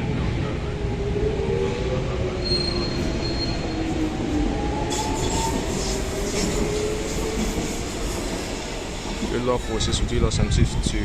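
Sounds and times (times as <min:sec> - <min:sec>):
high-pitched squeal: 0:02.4 - 0:04.0
hiss: 0:04.9 - 0:08.5.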